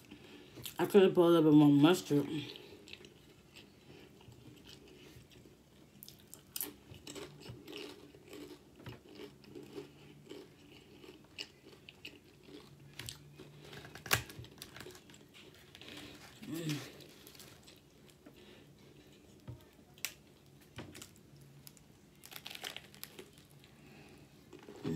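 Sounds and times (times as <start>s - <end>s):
person crunching chips: 6.0s - 18.2s, 20.9s - 23.8s.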